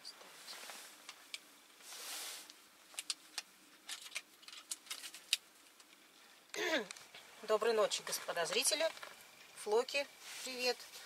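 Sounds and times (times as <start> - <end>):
soft rustle: 0.0 - 3.8, 8.0 - 11.0.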